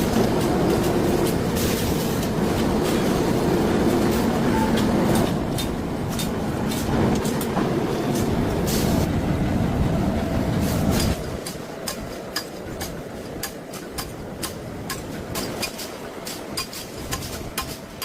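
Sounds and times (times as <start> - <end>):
factory machinery rumble and rattle: 0.0 - 18.0
sharp metallic clanks: 10.9 - 18.0.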